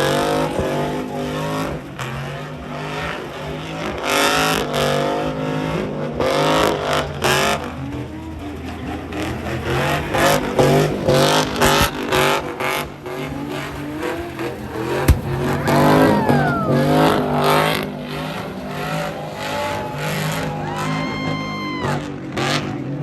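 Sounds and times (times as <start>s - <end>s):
truck engines revving: 0.0s - 23.0s.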